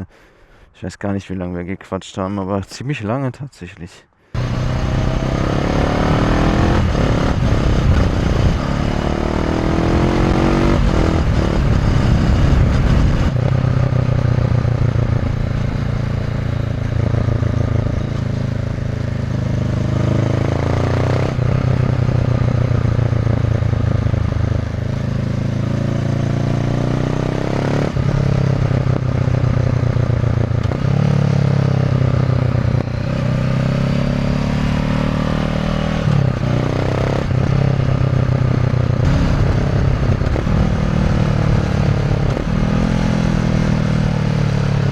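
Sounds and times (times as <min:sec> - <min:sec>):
motorcycle engine revving: 0:04.4 - 0:44.9.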